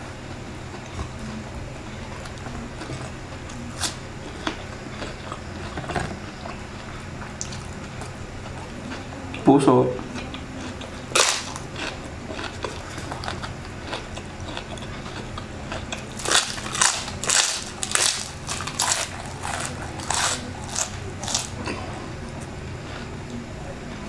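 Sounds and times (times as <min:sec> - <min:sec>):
crunching fried chicken skin: 0:10.6 - 0:21.8.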